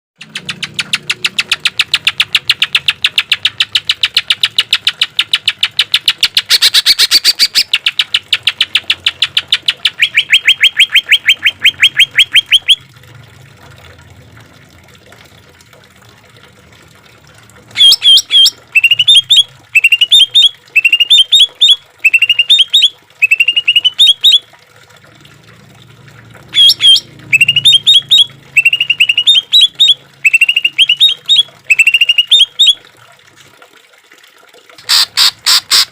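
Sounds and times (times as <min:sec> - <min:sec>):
bird singing rattling notes: 0:00.2 - 0:12.8, 0:17.8 - 0:24.4, 0:26.6 - 0:32.8.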